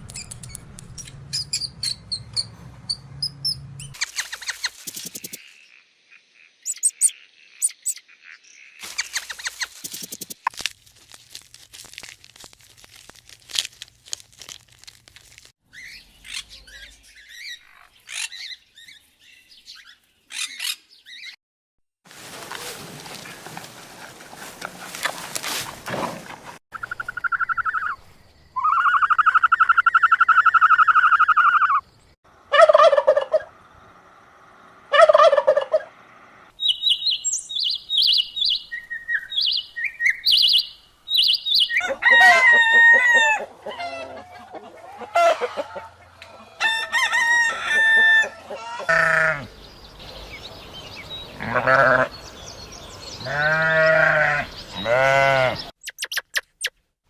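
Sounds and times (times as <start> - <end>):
animal calls: 34.9 - 36.0.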